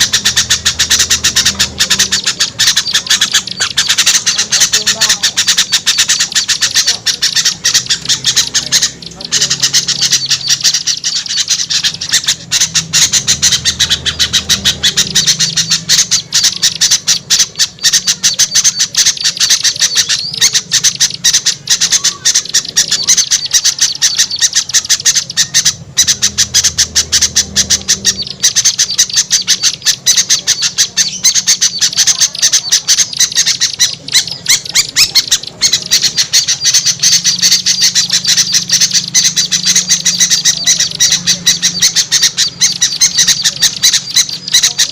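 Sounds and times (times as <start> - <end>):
songbirds chattering and squawking: 0.0 - 44.9.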